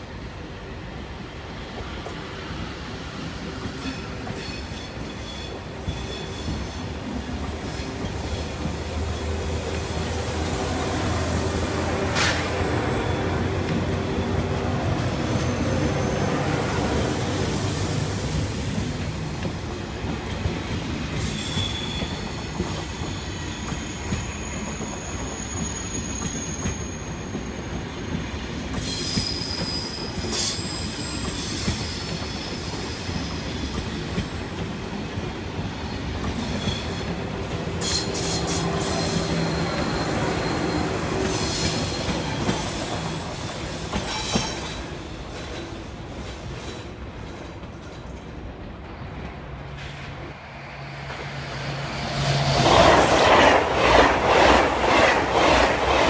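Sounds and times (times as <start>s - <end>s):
train wheels rumbling on rail: 0.0s - 56.0s
high-pitched squeals: 37.8s - 44.8s, 50.8s - 56.0s.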